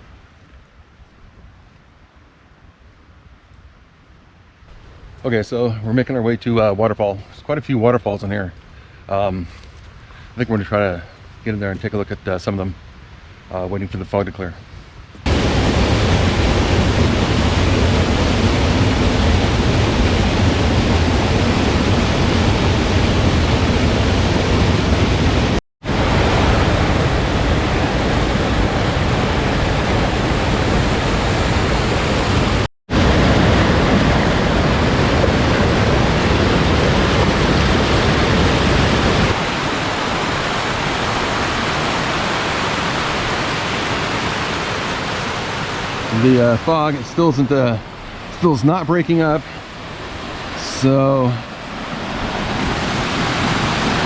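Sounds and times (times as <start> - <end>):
waterfall rushing: 15.3 - 54.0.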